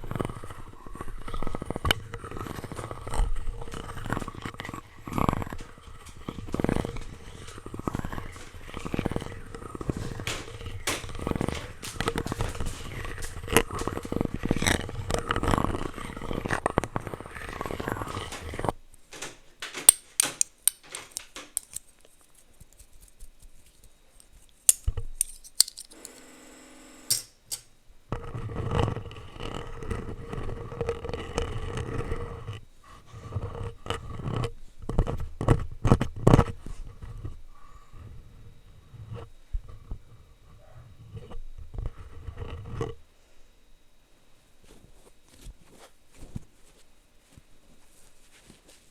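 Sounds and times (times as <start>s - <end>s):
plastic utensils scraping microphone: 0.0s - 21.8s, 28.1s - 43.0s.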